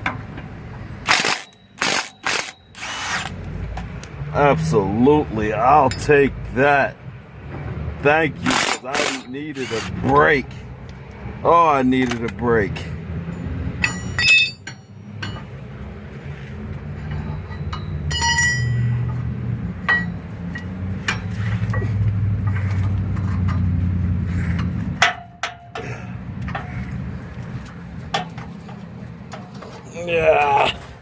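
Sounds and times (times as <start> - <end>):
metal tools clinking: 8.4 - 10.2, 12.0 - 12.6, 13.3 - 15.6, 17.0 - 19.2
low engine hum: 9.9 - 31.0.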